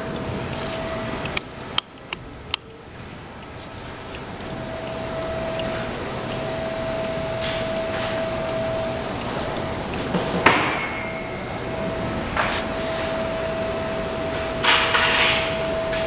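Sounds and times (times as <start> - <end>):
steady background hum: 0.0 - 16.0
sharp ringing clank: 10.3 - 16.0.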